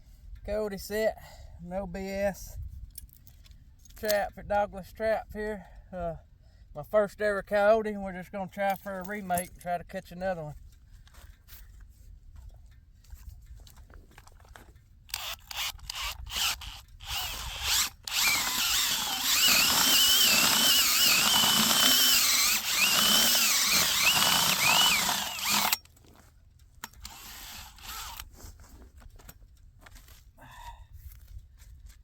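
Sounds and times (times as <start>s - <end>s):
power drill boring into ground: 15.1s - 25.9s, 26.8s - 28.3s.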